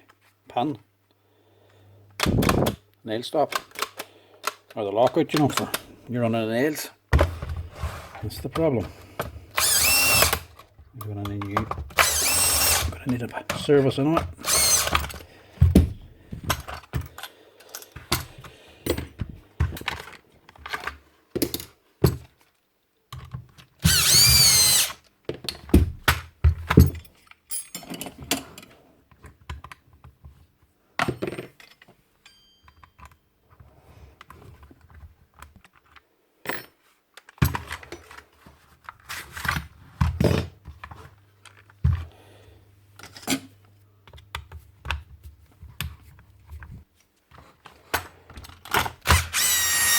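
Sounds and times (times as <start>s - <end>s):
small power tool motor whirring: 9.6s - 10.5s, 12.0s - 13.0s, 14.4s - 15.0s, 23.8s - 25.0s, 49.1s - 49.9s.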